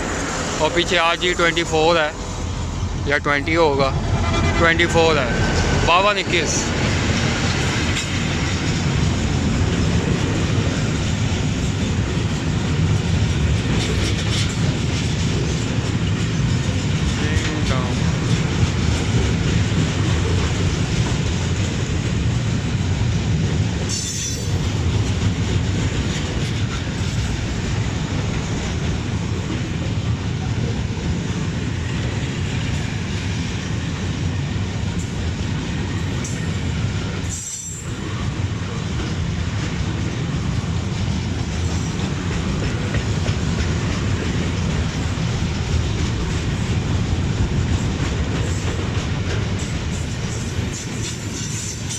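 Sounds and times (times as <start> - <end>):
train wagons rumbling on rails: 0.0 - 51.9.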